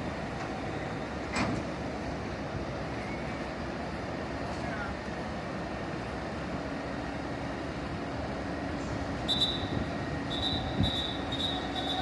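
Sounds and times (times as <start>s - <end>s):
high-pitched warning beeps: 10.3s - 12.0s.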